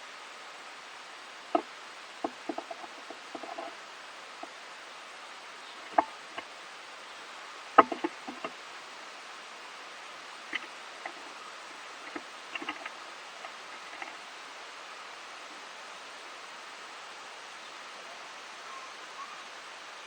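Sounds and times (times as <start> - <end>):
steady hiss: 0.0 - 20.0
squirrel feeding clicks: 1.5 - 3.8, 5.7 - 6.5, 7.6 - 8.7, 10.3 - 14.3.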